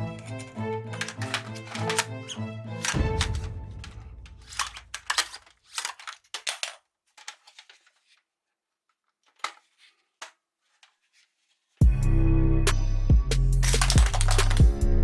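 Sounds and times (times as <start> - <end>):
background music: 0.0 - 4.7, 11.8 - 15.0
toy rifle clicking: 0.0 - 7.5, 13.6 - 14.7.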